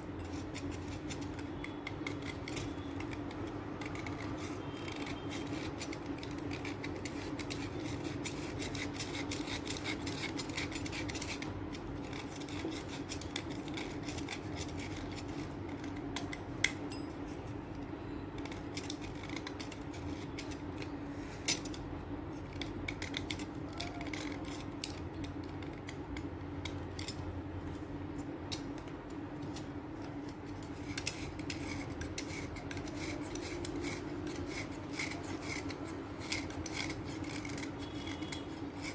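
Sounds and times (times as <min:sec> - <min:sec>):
chalk crunching scrapes: 0:30.2 - 0:38.9.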